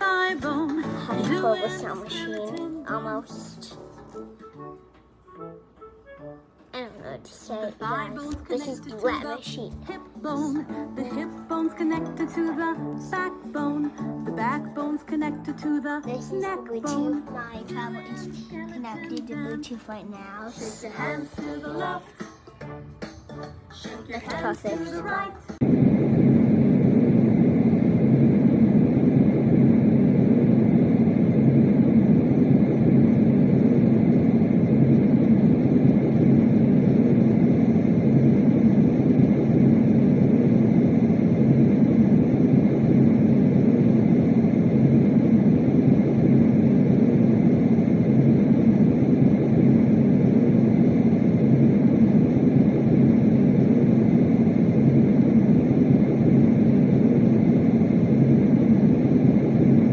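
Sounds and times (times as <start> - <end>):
white noise machine rushing: 25.6 - 59.9.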